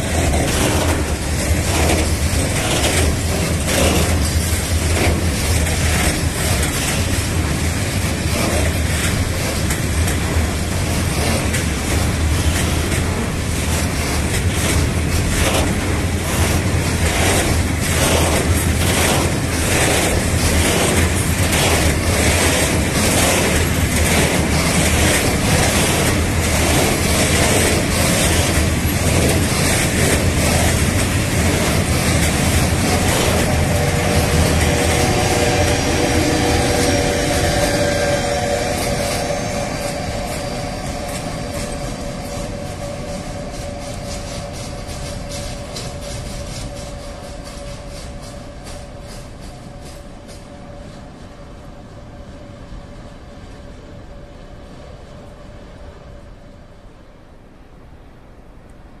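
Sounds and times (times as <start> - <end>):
wheels clacking over rail joints: 0.0 - 50.5
electric locomotive humming: 0.0 - 59.0
multi-tone squeal: 21.7 - 49.8.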